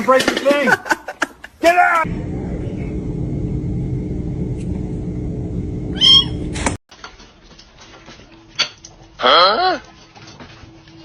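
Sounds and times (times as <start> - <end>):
steady low hum: 2.0 - 6.8.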